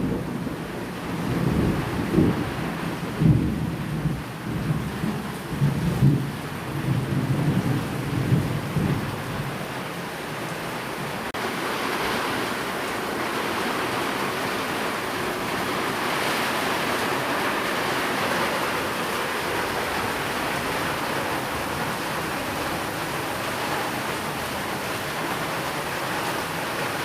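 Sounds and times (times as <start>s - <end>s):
thunder rumble: 0.0s - 9.7s
steady rain hiss: 0.0s - 27.0s.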